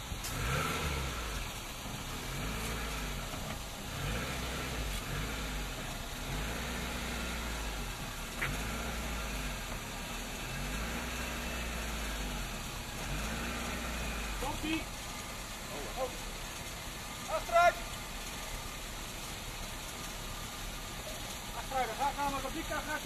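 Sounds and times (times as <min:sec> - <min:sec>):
engine running at low revs: 0:00.0 - 0:23.0.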